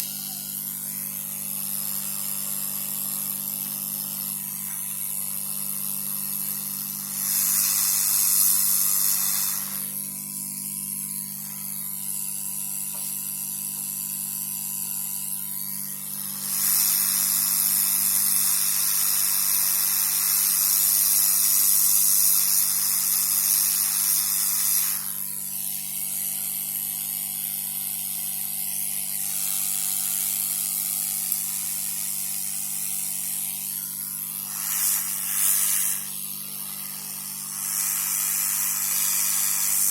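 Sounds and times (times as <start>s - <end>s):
hot air blower hiss: 0.0s - 1.8s, 6.4s - 11.9s, 15.8s - 25.8s, 28.9s - 39.9s.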